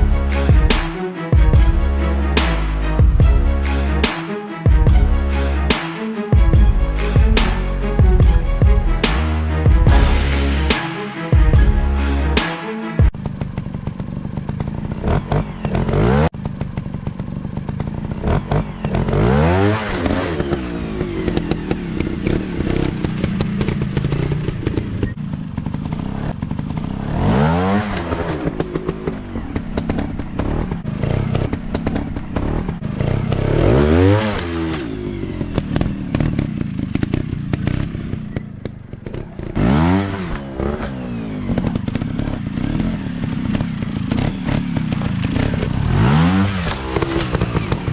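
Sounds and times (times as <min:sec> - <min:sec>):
dirt bike engine revving: 0:06.4 - 0:47.9.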